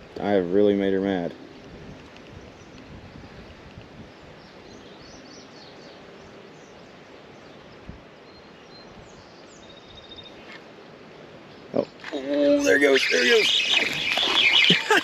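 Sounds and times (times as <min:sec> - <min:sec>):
outdoor background noise: 0:00.0 - 0:15.0
faint bird chirps: 0:04.2 - 0:10.6, 0:11.5 - 0:15.0.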